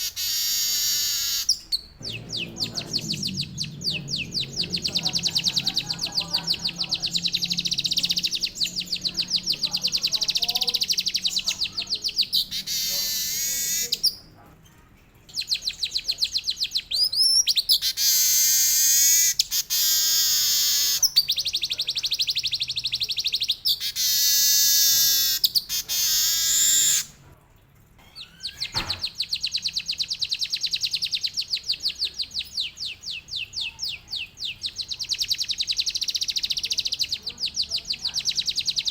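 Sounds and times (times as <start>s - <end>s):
weaver bird singing trills: 0.0s - 14.3s, 15.2s - 27.1s, 28.1s - 38.9s.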